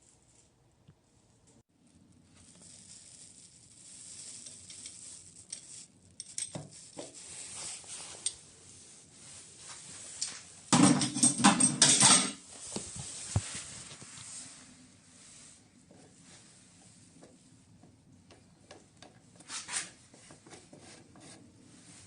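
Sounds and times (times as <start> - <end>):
metal parts clinking and scraping: 4.4 - 6.8, 10.2 - 12.4.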